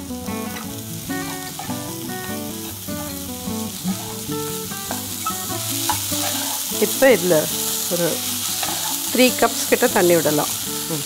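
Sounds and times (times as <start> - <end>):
instrumental background music: 0.0 - 11.0
vegetables sizzling in a frying pan: 0.0 - 11.0
spatula stirring in a pan: 0.4 - 2.9, 3.9 - 9.9.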